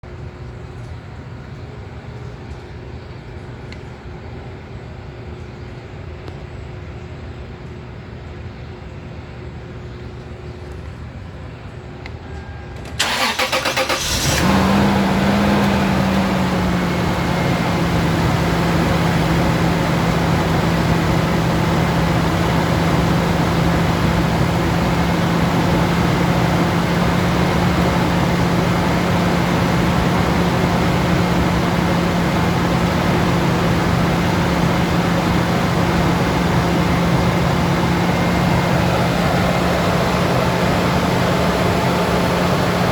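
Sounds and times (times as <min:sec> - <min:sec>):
engine starter cranking: 0:12.9 - 0:42.9
engine idling: 0:13.0 - 0:42.9.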